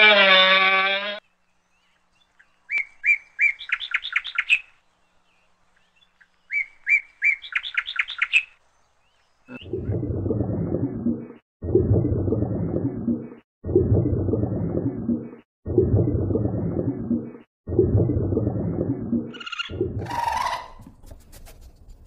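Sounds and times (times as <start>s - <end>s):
songbird singing: 1.2s - 10.4s.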